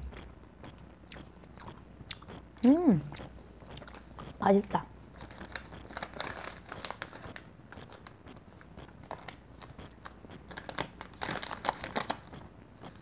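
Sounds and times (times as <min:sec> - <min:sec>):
wet mouth clicks: 0:00.0 - 0:04.4
chewing gummy candy: 0:00.0 - 0:13.0
plastic packets crinkling: 0:05.2 - 0:08.1, 0:09.0 - 0:13.0.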